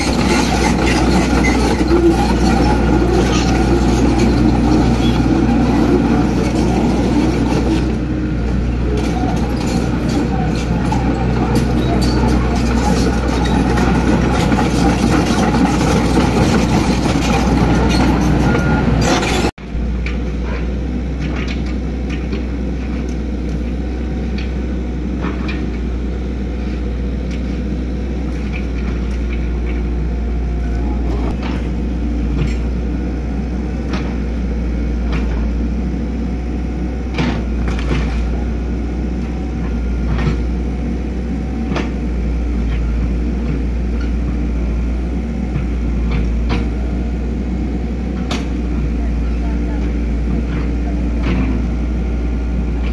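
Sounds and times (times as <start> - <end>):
excavator diesel engine droning: 0.0 - 52.9.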